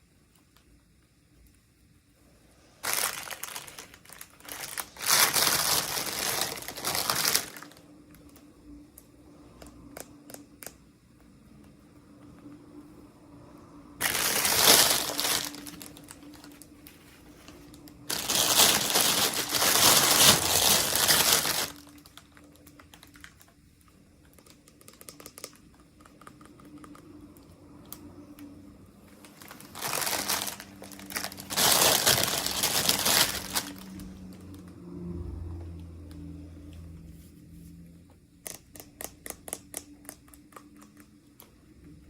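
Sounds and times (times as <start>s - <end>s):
packaging crinkling: 2.8s - 8.4s, 14.0s - 23.6s, 29.2s - 34.6s.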